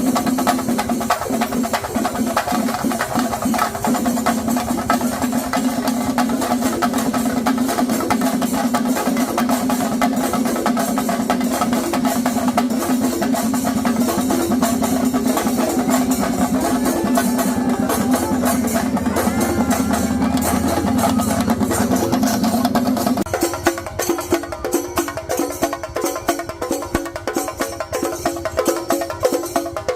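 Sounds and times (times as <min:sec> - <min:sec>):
fast drumming: 0:00.0 - 0:29.9
steady held tone: 0:15.2 - 0:23.3
wavering high melody: 0:15.4 - 0:23.3.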